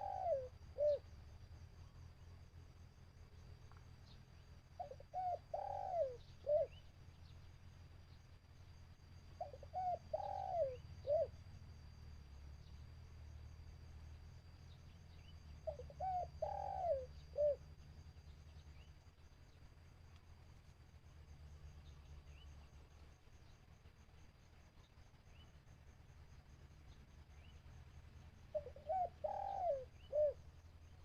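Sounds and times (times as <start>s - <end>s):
dove cooing: 0.0s - 1.0s, 4.8s - 6.8s, 9.4s - 11.3s, 15.6s - 17.6s, 28.5s - 30.4s.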